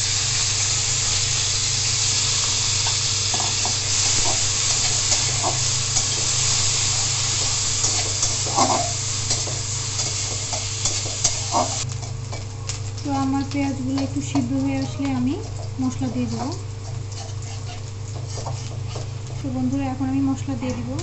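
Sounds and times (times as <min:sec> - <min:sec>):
onion sizzling in oil: 0:00.0 - 0:21.0
metal spatula scraping a wok: 0:03.3 - 0:11.8, 0:17.1 - 0:19.1.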